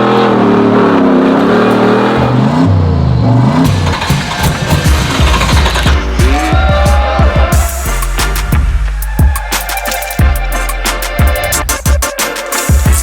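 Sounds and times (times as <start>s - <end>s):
car engine revving hard: 0.0s - 6.6s.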